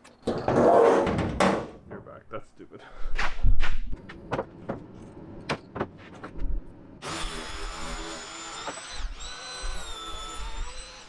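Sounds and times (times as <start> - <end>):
electric motor whining: 7.0 - 11.0.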